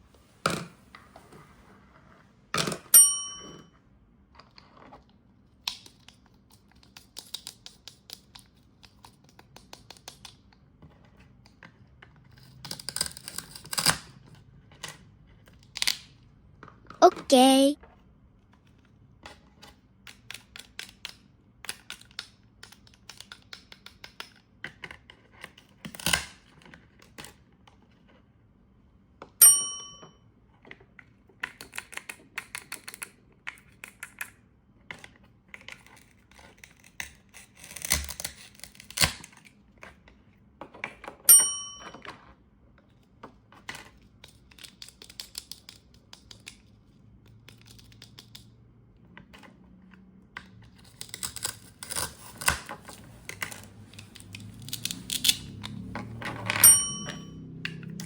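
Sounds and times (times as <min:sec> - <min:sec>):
loud ringing clinks: 0:29.4 - 0:30.0, 0:56.6 - 0:57.3.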